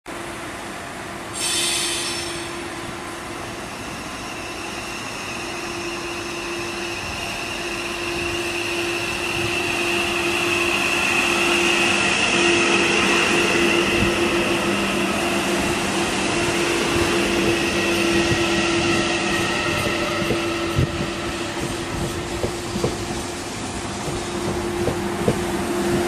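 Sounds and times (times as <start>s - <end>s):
electric train whine: 0.1s - 26.0s
short shrill sound: 1.4s - 2.7s.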